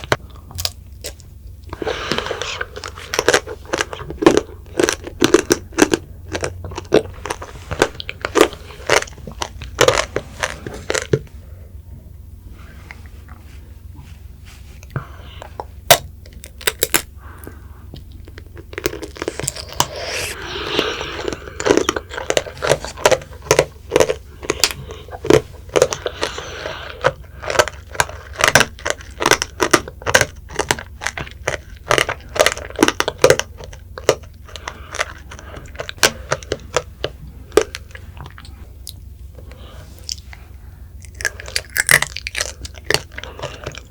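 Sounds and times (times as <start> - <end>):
candy shell crunching: 0.0 - 11.4, 14.8 - 43.9.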